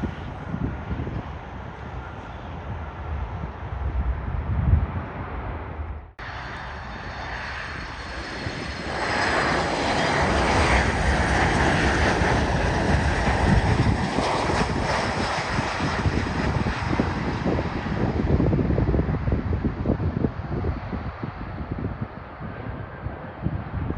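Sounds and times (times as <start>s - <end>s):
high engine whine: 0.0s - 18.6s
jet airliner passing: 0.0s - 23.9s.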